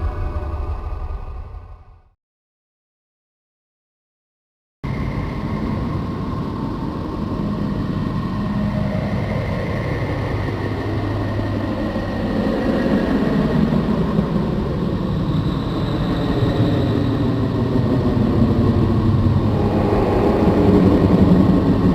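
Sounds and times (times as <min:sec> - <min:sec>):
low rumbling drone: 0:00.0 - 0:02.1, 0:16.5 - 0:21.9.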